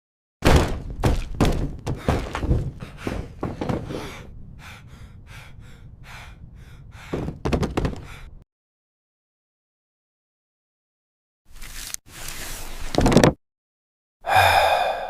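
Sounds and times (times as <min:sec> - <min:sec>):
heavy thuds and impacts: 0:00.4 - 0:04.3, 0:07.1 - 0:08.3.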